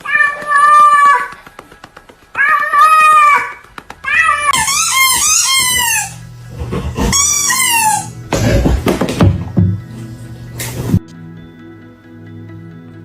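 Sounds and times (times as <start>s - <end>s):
cat meowing: 0.0s - 1.3s, 2.4s - 6.2s.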